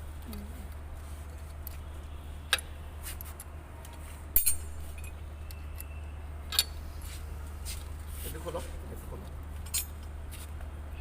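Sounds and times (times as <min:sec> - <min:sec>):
metal tools clinking: 0:04.3 - 0:06.8, 0:09.6 - 0:10.1.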